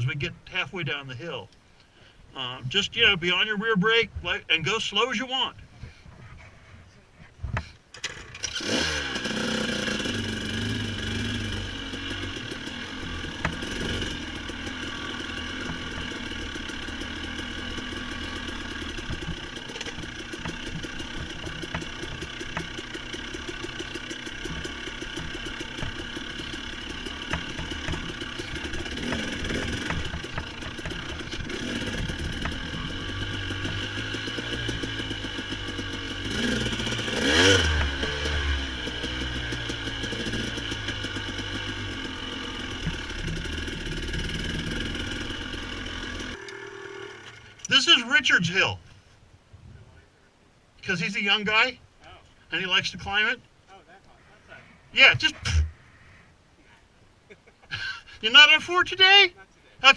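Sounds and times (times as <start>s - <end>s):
dirt bike engine revving: 8.0s - 48.4s.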